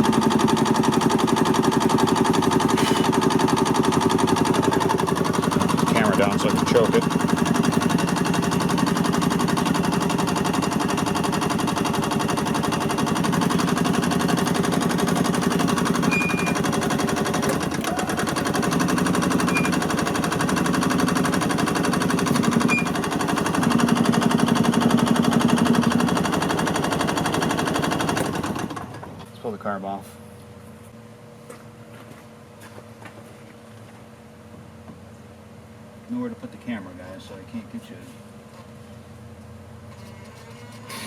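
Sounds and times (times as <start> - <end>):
two-stroke engine popping: 0.0 - 28.8.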